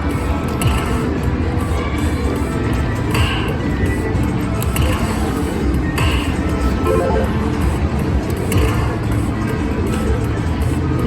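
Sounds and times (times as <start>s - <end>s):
electronic slot machine music: 6.8s - 7.6s.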